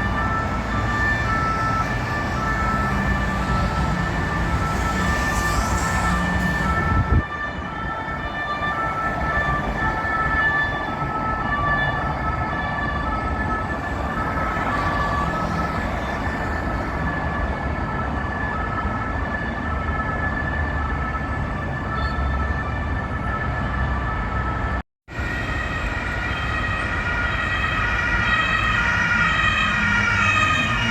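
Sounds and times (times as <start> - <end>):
police two-tone siren: 0.0 - 30.9
street traffic: 0.0 - 30.9.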